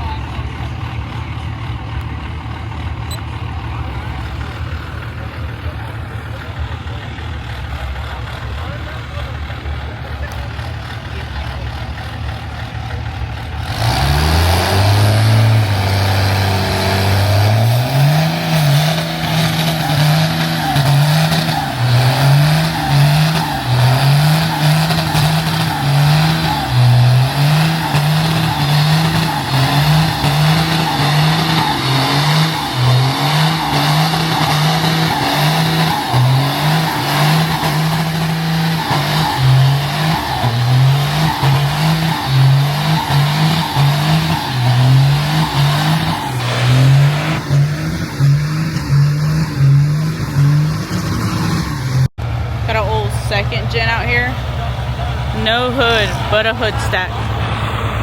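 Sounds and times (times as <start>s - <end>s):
truck engine revving: 0.0s - 58.0s
loud rushing noise: 13.6s - 52.3s, 54.1s - 58.0s.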